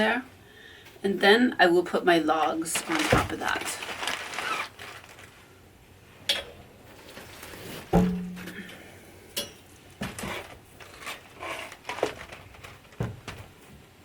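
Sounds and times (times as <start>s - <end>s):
paper rustling: 2.4s - 5.4s, 10.2s - 13.6s
logs knocking onto pile: 7.9s - 8.7s.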